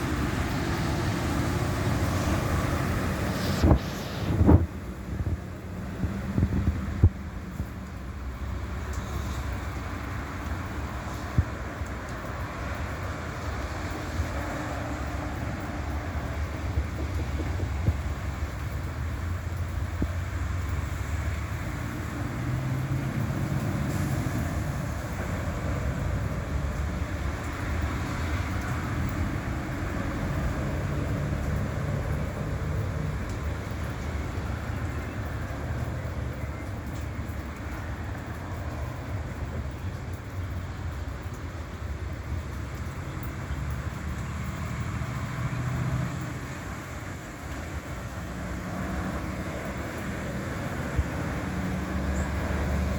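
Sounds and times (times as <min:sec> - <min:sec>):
hiss: 0:02.1 - 0:04.6.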